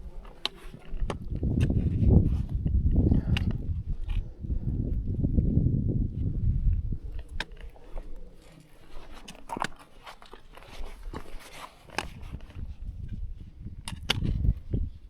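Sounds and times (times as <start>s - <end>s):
wind buffeting microphone: 0.0s - 15.0s
footsteps crunching on rough ground: 7.0s - 13.5s.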